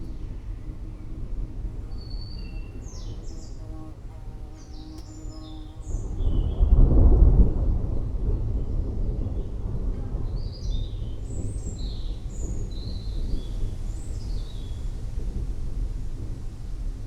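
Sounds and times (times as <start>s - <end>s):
thunder rumbling: 4.8s - 17.0s.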